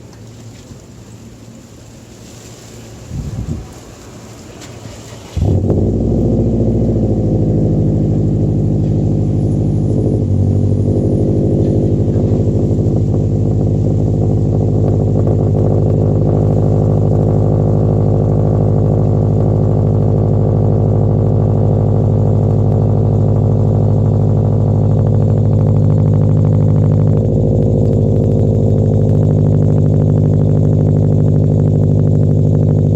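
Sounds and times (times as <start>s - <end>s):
car engine starting: 0.0s - 32.9s
loud car engine high idle: 4.3s - 32.9s.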